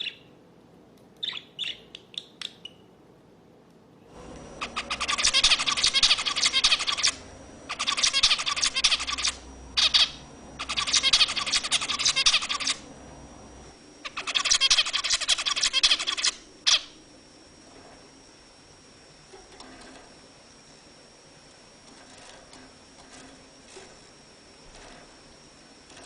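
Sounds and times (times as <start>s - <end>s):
caged songbird singing: 0.0s - 0.3s, 1.2s - 2.9s, 4.6s - 17.0s.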